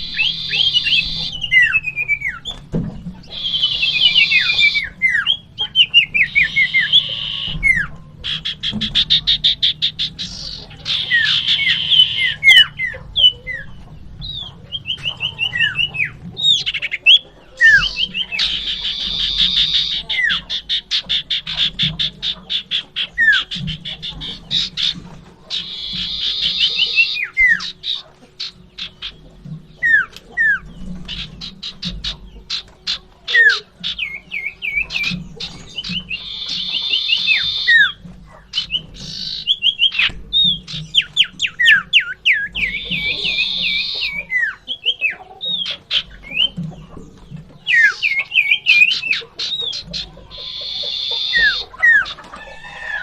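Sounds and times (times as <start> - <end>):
bird singing rattling chatters: 0.0 - 53.0.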